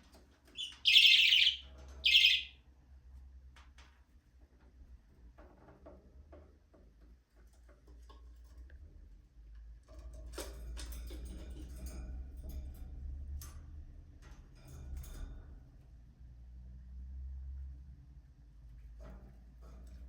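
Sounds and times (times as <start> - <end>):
budgerigars clicking and tapping: 0.5 - 2.5
budgerigars chirping: 0.6 - 2.5.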